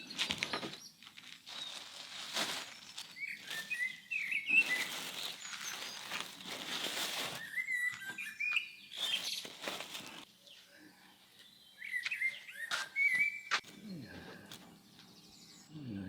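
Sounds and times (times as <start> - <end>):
small birds chirping: 0.0 - 16.0
rustle: 0.1 - 8.0, 9.0 - 10.2.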